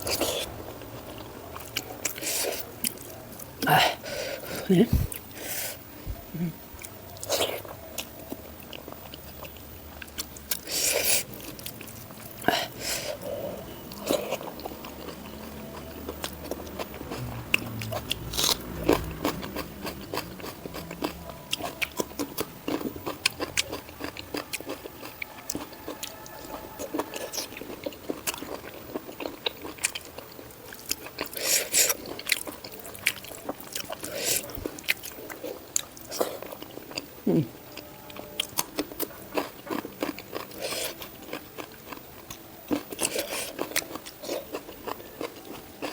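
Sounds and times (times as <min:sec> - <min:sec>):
person chewing crunchy food: 0:00.0 - 0:45.9.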